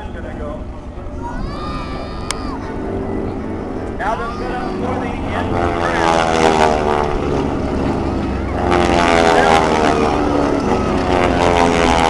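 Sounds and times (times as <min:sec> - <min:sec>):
propeller planes flying past: 0:00.0 - 0:12.0.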